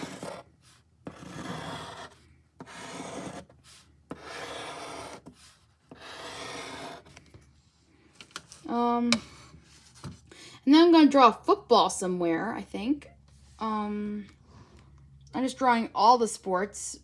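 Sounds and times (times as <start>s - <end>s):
drawing tool scratching paper: 0.0s - 7.1s.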